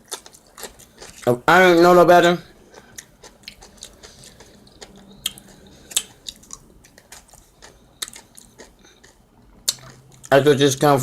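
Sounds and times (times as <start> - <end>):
crisp chewing crunches: 0.0 - 1.4, 2.7 - 10.4
wet mouth clicks: 3.0 - 10.3.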